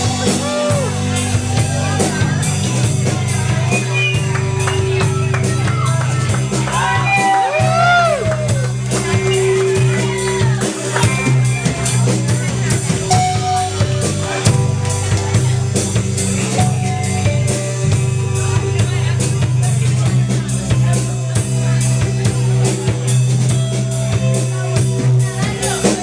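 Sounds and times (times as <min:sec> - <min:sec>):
drum kit beat: 0:00.0 - 0:26.0
heavy sustained bass: 0:00.0 - 0:26.0
live rock band playing: 0:00.0 - 0:26.0.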